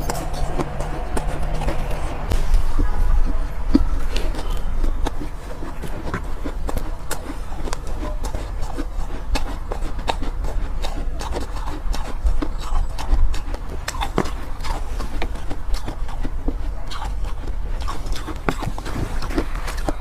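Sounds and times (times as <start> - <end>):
low rumble: 0.0 - 9.4
chewing crunchy ice: 0.0 - 20.0.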